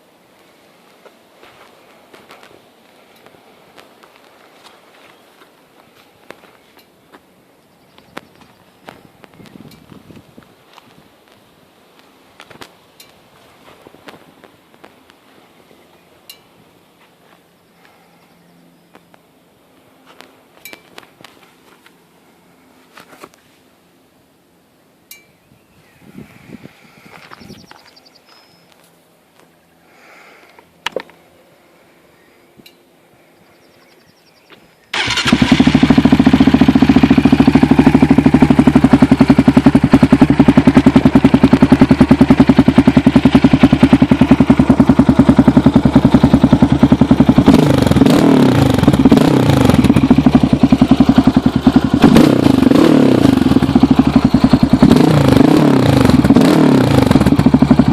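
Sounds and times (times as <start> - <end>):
atv engine revving: 34.9 - 57.9
atv engine starting and idling: 34.9 - 57.9.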